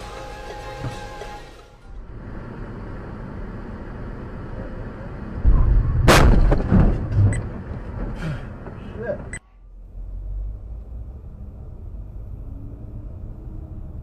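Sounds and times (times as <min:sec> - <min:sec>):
road noise: 0:00.0 - 0:14.0
sharp crash: 0:05.4 - 0:07.4
car crash thump: 0:05.4 - 0:08.8.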